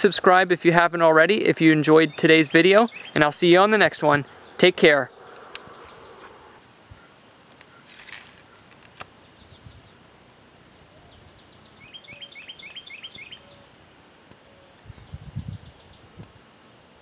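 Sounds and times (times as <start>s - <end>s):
outdoor background noise: 0.0s - 17.0s
bird chirping: 1.6s - 10.0s, 10.9s - 13.7s, 14.4s - 16.2s.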